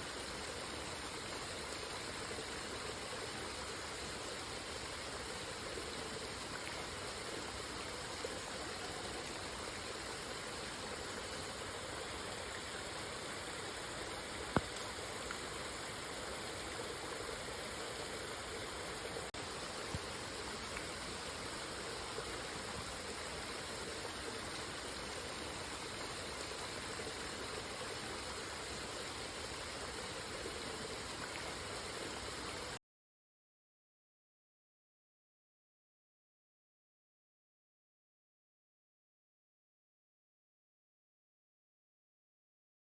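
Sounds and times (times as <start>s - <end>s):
steady rain falling: 0.0s - 32.8s.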